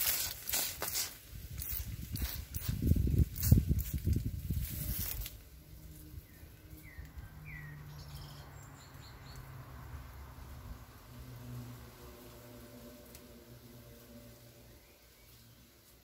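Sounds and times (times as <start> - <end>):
brief rustle: 0.0 - 5.5
small bird chirping: 6.0 - 9.5.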